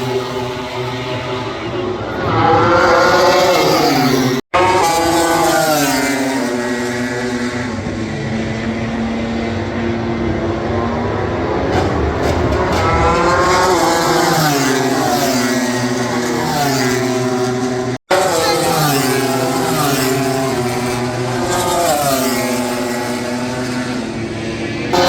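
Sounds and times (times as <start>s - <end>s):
racing motorcycles passing: 0.0s - 25.0s.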